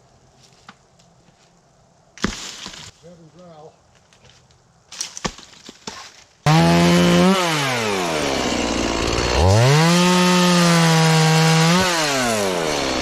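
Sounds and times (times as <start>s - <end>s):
chainsaw revving and cutting: 6.5s - 13.0s.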